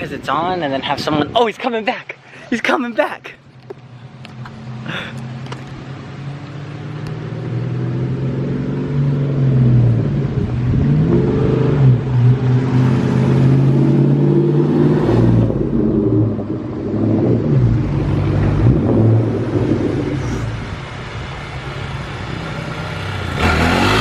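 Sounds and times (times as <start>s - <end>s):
car engine revving in low gear: 6.8s - 20.6s, 23.2s - 24.0s.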